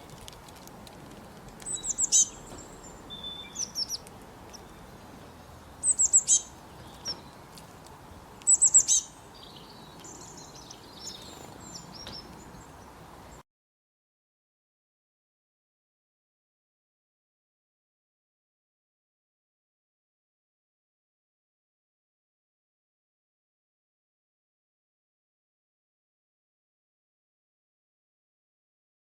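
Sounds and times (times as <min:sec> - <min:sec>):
small birds singing: 0:00.0 - 0:13.4
softer bird chirps: 0:01.7 - 0:04.0, 0:05.8 - 0:07.3, 0:08.5 - 0:12.4.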